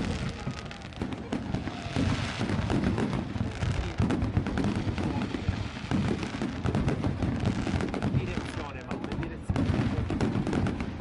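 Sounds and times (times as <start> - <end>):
fireworks booming and crackling: 0.0 - 11.0.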